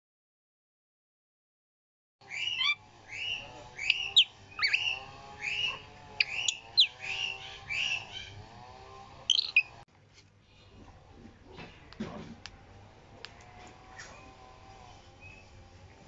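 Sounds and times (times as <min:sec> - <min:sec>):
birds chirping: 0:02.2 - 0:09.8, 0:13.7 - 0:16.0.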